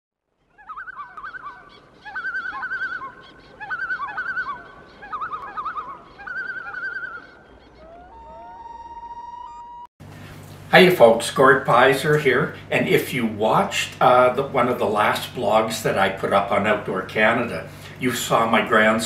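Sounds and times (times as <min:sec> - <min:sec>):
bird calling in wavering trills: 0:00.4 - 0:09.9.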